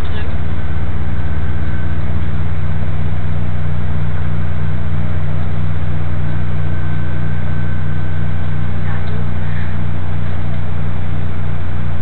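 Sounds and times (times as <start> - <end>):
train carriage running rumble: 0.0 - 12.0.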